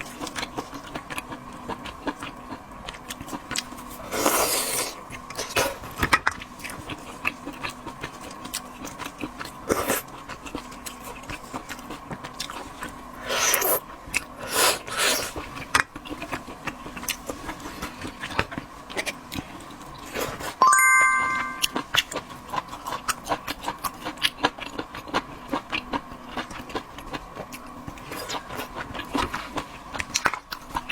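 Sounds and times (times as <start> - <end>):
chewing and biting seafood: 0.0 - 20.6, 22.0 - 30.9
ringing tone: 20.6 - 21.8.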